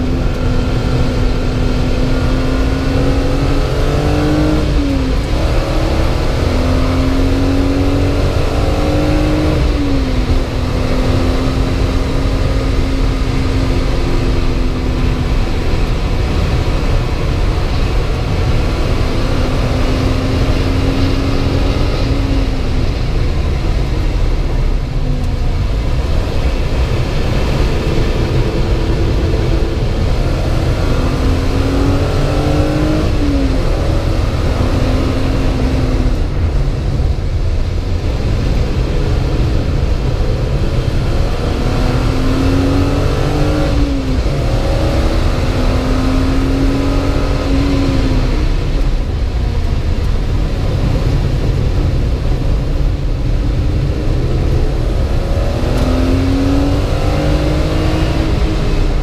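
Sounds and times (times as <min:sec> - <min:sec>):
car engine accelerating: 0:00.0 - 0:59.0
low rumble: 0:11.6 - 0:42.3.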